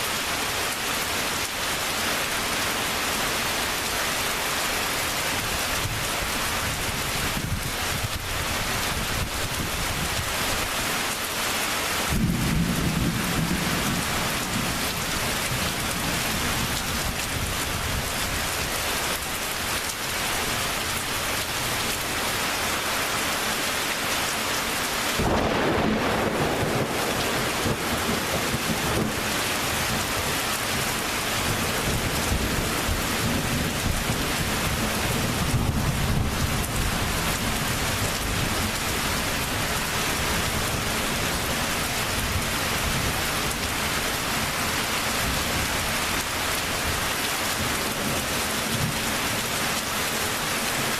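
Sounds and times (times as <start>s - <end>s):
heavy rain: 0.0s - 50.9s
thunder rumbling and cracking: 12.1s - 18.0s, 25.2s - 39.6s.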